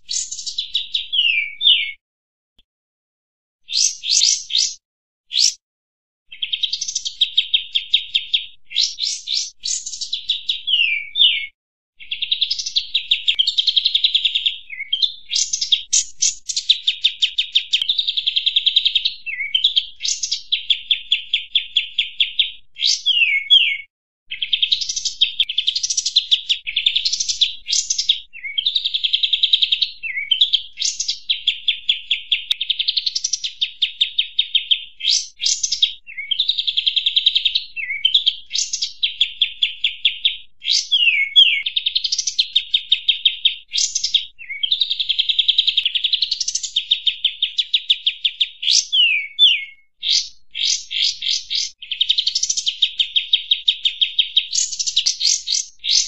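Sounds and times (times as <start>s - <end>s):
bird chattering trills: 3.7s - 5.6s.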